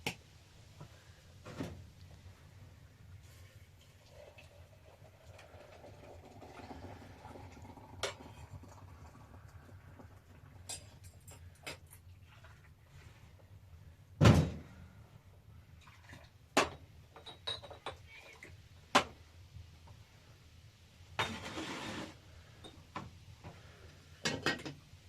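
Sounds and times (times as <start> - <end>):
rustling or scraping: 21.2 - 22.2.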